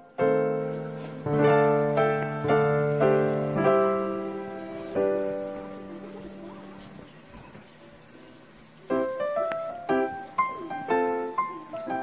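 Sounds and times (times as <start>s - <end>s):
slow piano notes: 0.0s - 7.6s, 8.8s - 12.0s.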